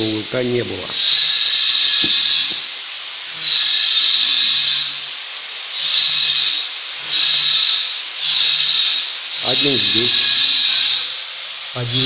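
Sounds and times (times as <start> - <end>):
electric power drill whining: 0.9 - 2.7.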